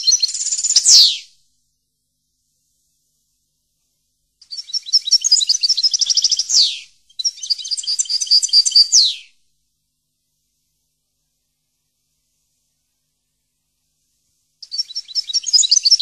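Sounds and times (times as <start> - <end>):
songbird chirping and trilling: 0.0 - 1.3, 4.4 - 9.4, 14.6 - 16.0.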